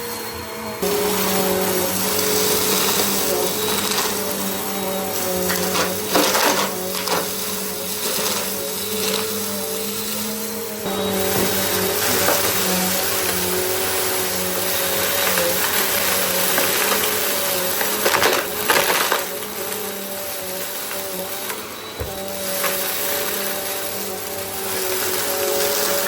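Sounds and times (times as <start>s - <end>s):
vacuum cleaner running: 0.0s - 26.0s
debris rattling in vacuum: 0.8s - 26.0s.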